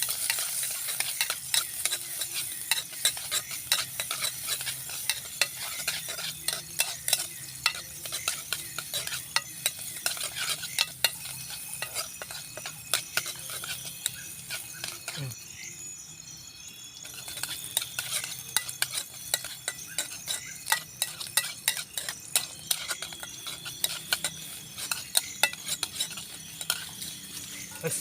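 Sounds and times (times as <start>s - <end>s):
metal spatula scraping a pan: 0.0s - 15.3s, 17.0s - 28.0s
food sizzling in a frying pan: 0.0s - 16.2s, 17.0s - 28.0s.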